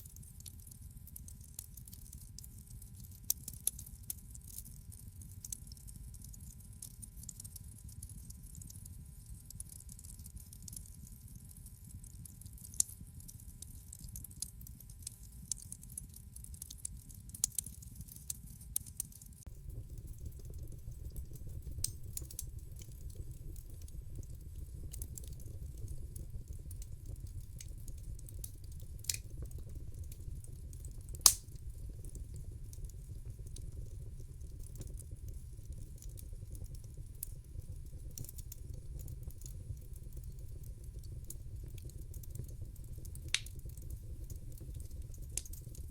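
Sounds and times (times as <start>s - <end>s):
fire popping and snapping: 0.1s - 8.7s, 12.1s - 45.9s
low rumble of flames: 19.4s - 45.9s.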